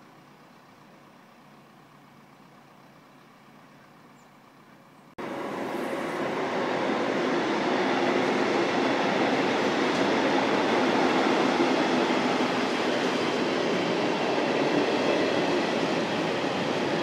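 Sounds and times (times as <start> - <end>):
train wheels rolling on rails: 5.2 - 17.0.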